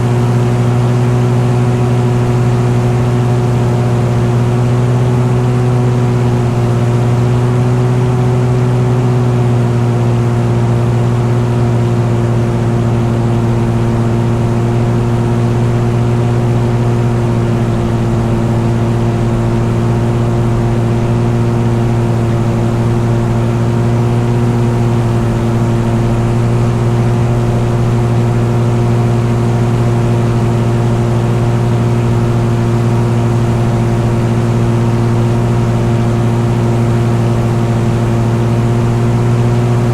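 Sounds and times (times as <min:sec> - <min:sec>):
engine droning steadily: 0:00.0 - 0:39.9.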